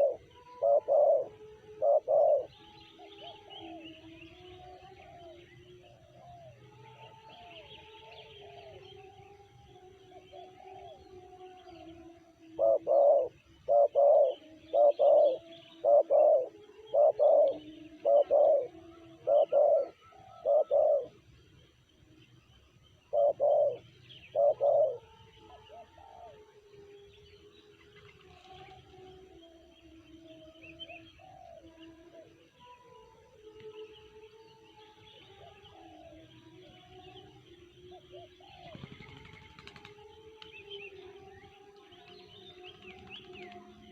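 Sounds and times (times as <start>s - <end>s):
dove cooing: 0.0s - 6.6s, 10.1s - 21.2s, 23.0s - 26.5s, 30.8s - 32.3s, 37.9s - 39.9s
distant doves cooing: 0.0s - 9.1s, 9.8s - 21.2s, 22.9s - 26.7s, 28.0s - 32.7s, 35.0s - 43.9s.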